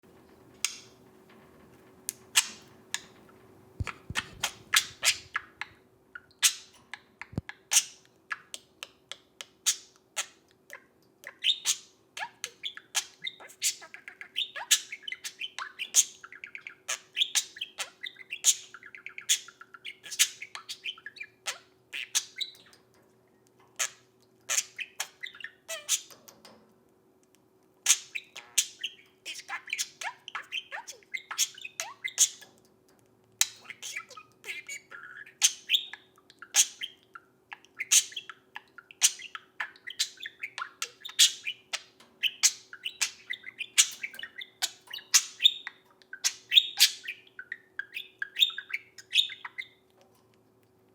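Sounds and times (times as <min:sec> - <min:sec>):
budgerigar chirping and chattering: 0:02.4 - 0:03.2, 0:03.8 - 0:22.8, 0:23.8 - 0:26.2, 0:27.8 - 0:32.6, 0:33.4 - 0:49.9.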